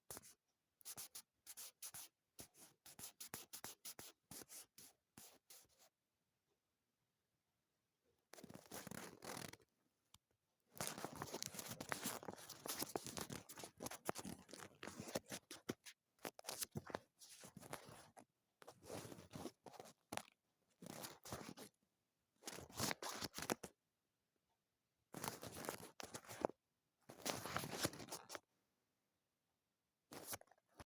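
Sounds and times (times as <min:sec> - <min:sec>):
paper crinkling and rustling: 0:10.8 - 0:18.2, 0:27.2 - 0:28.4.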